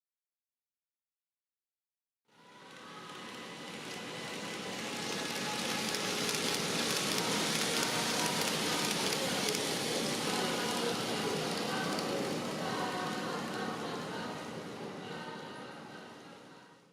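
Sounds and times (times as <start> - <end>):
model train wheels rattling on rail: 2.6 - 13.5.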